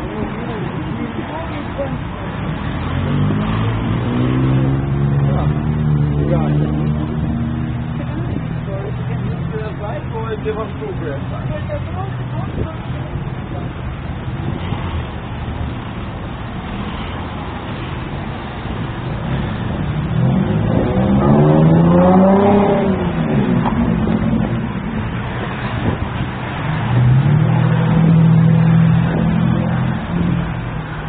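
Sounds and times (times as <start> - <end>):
low traffic rumble: 0.0 - 31.0
vehicle engine revving or passing: 1.7 - 10.1, 16.8 - 31.0.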